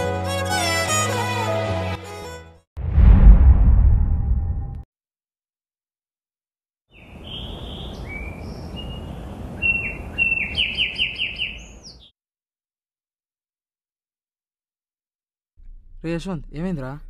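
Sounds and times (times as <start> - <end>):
birds whistled chirps: 6.9 - 12.1
outdoor background hiss: 7.1 - 12.0.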